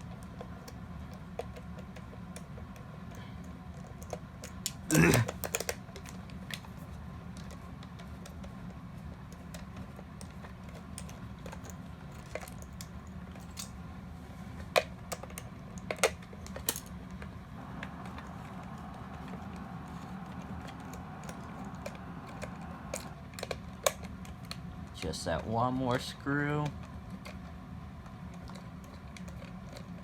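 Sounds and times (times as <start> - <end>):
steady low hum: 10.2 - 30.0.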